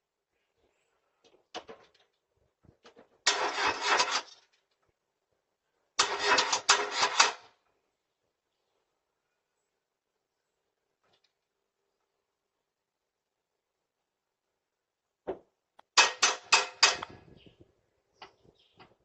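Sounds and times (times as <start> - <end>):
car engine cranking: 3.3 - 4.3, 6.0 - 7.4.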